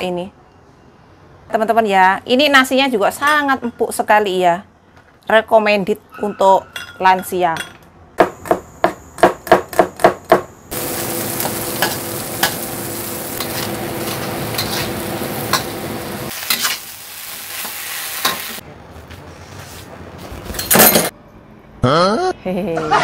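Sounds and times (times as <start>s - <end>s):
oil sizzling in wok: 10.7s - 18.6s
spatula scraping a pan: 13.4s - 15.0s.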